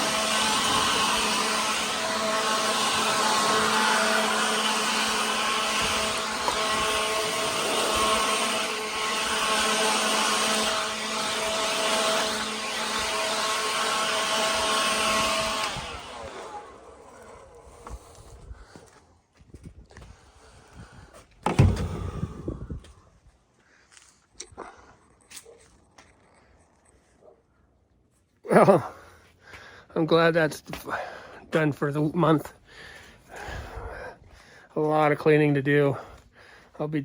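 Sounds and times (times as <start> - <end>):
electric motor humming: 0.0 - 18.2.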